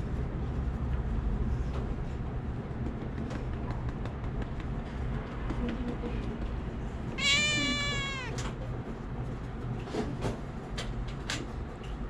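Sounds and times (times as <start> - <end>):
cat meowing: 7.2 - 8.6.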